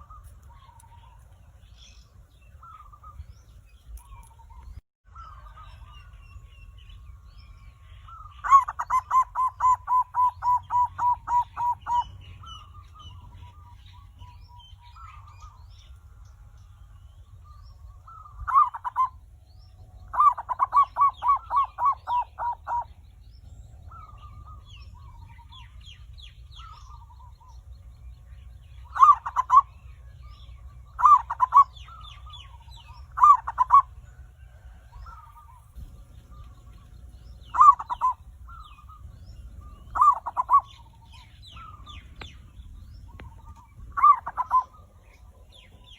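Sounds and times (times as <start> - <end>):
dove cooing: 8.1 - 15.6, 18.1 - 19.2, 20.1 - 23.0, 28.8 - 29.8, 30.9 - 45.9.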